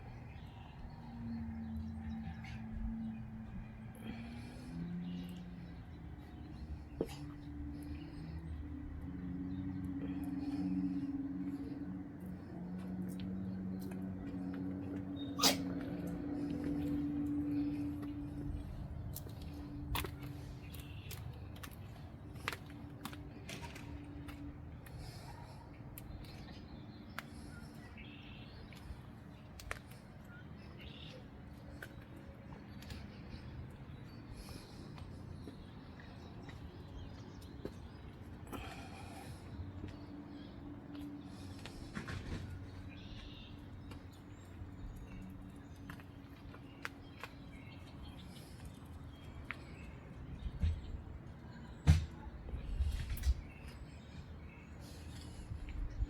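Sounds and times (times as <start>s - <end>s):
birds chirping faintly: 0.0s - 56.0s.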